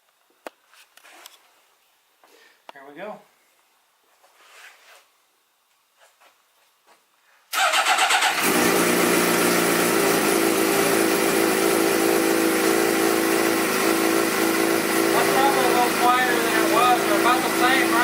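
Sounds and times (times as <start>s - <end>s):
motorcycle starter cranking: 7.6s - 9.2s
motorcycle engine idling: 8.4s - 18.0s.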